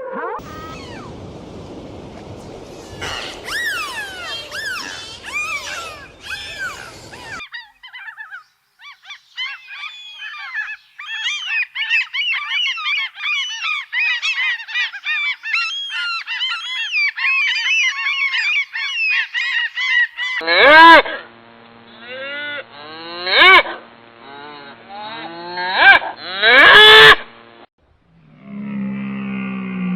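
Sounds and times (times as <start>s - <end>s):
deep single bird calls: 0.4s - 7.4s
flock of birds calling: 0.4s - 20.4s.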